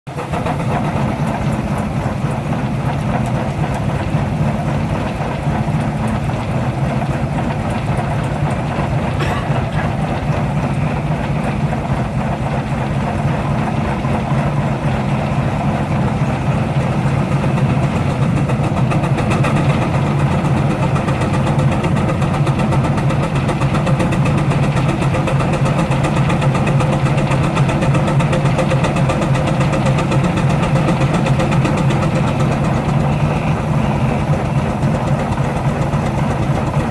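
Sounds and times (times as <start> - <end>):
steam engine exhaust beats: 0.1 - 36.9.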